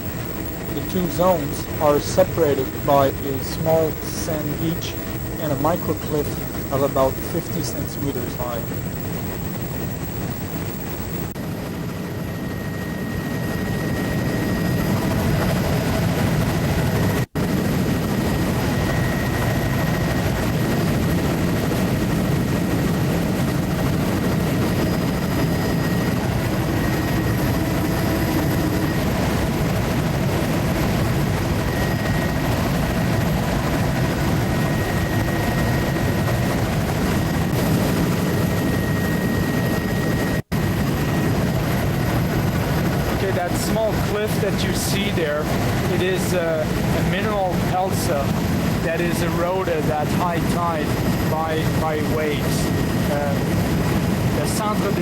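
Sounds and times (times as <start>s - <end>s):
aircraft engine drone: 0.0s - 55.0s.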